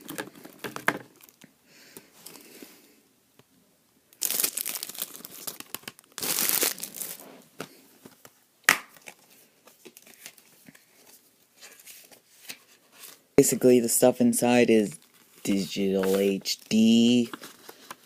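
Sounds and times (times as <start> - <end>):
plastic and paper crinkling: 4.2 - 8.3, 9.0 - 13.2, 14.9 - 18.0.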